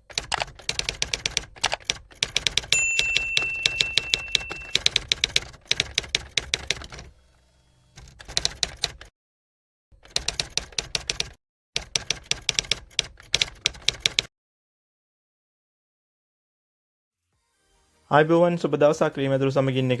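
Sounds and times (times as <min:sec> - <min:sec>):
typewriter bell ding: 0:02.7 - 0:05.0.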